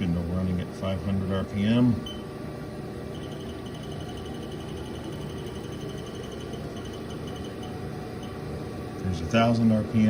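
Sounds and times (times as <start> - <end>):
lathe spindle humming: 2.9 - 8.4
faint high pulsing tone: 3.1 - 8.4.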